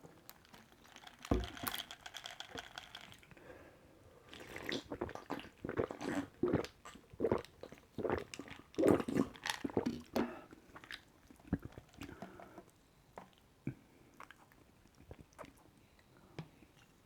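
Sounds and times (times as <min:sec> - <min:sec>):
person gulping and swallowing: 0:04.4 - 0:12.4.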